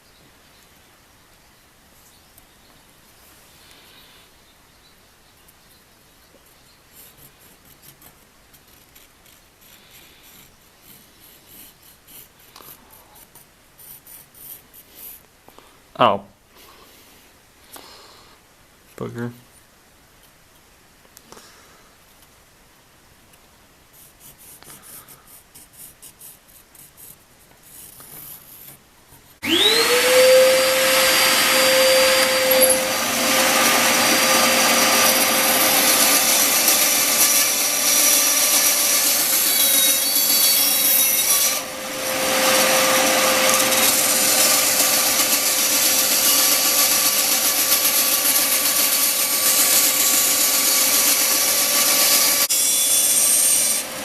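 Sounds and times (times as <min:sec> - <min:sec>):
electric power tool whining: 0:29.4 - 0:52.5.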